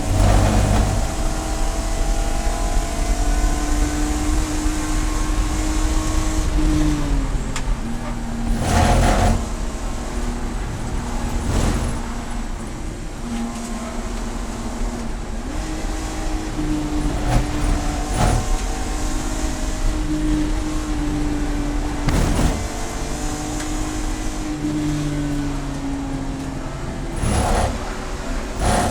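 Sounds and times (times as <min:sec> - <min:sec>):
race car engine at speed: 0:00.0 - 0:28.9
road and wind rush: 0:00.0 - 0:28.9.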